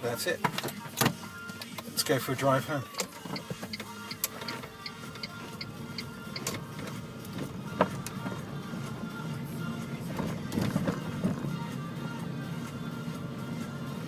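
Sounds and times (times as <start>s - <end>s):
low cabin hum: 0.0s - 14.0s
car turn signal ticking: 2.9s - 8.4s.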